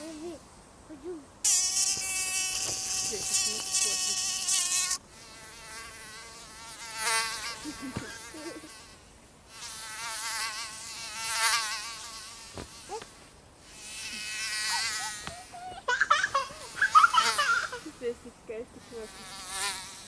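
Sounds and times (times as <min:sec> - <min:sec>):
mosquito whining: 0:09.9 - 0:18.1.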